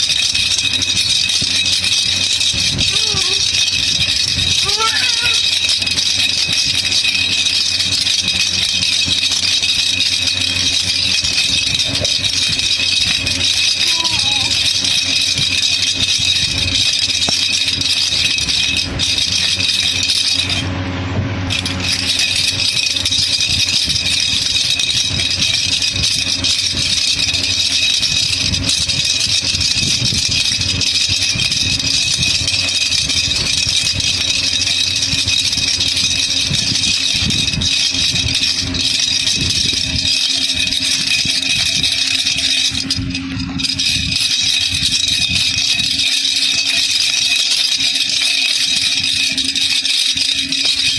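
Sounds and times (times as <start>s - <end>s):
baby rattle shaken: 0.0s - 20.7s, 21.5s - 50.9s.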